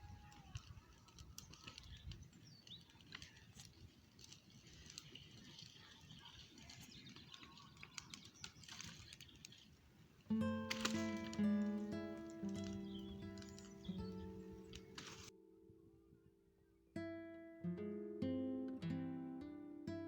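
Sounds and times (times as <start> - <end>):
small clicks: 0.0 - 9.8, 10.6 - 15.3
distant birds chirping: 0.0 - 15.3.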